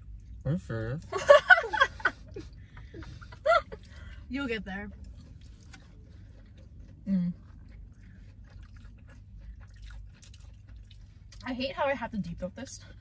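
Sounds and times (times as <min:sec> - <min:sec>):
person chewing wetly: 0:03.0 - 0:11.6.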